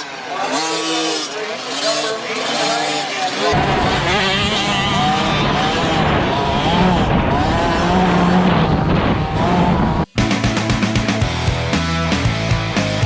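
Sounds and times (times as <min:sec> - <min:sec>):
dirt bike engines revving: 0:00.0 - 0:13.0
rock music with guitar: 0:10.2 - 0:13.0.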